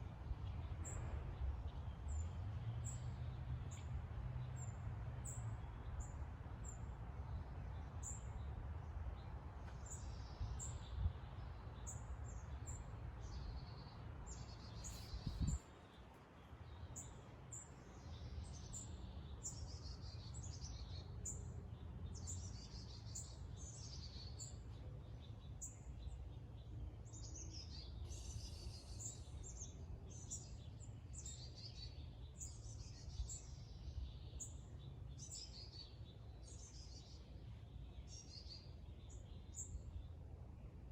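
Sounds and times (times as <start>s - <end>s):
small birds chirping: 9.2s - 40.2s.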